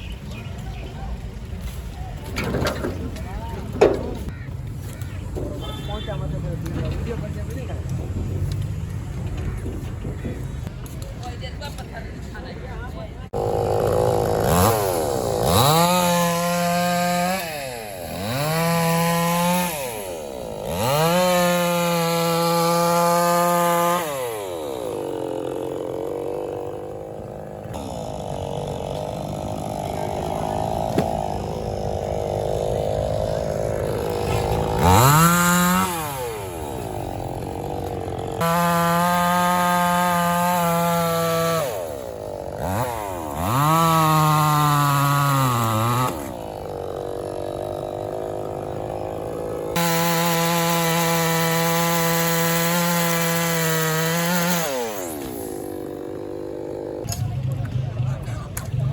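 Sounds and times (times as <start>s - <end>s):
chainsaw cutting wood: 2.2s - 7.1s, 13.3s - 57.3s.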